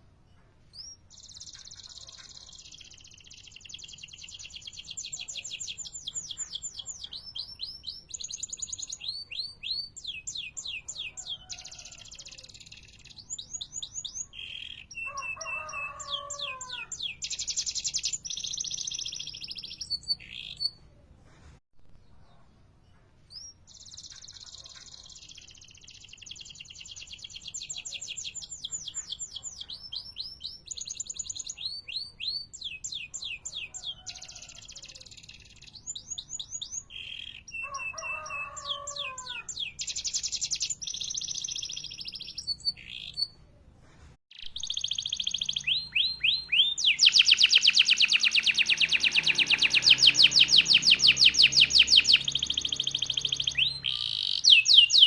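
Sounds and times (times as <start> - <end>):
canary singing trilled rolls: 44.3 - 55.0.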